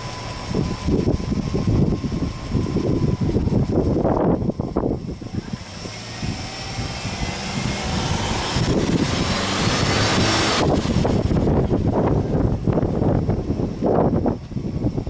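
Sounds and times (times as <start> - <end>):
faint high whine: 0.0 - 10.6
car engine revving: 0.0 - 14.8.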